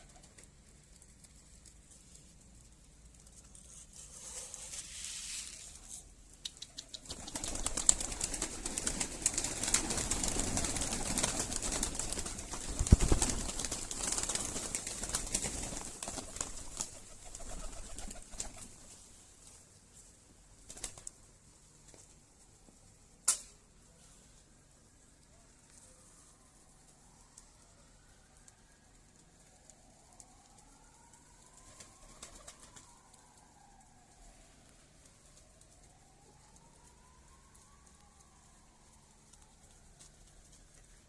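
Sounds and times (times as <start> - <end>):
wings flapping and rustling: 0.0 - 20.0, 20.6 - 21.2, 31.5 - 33.4.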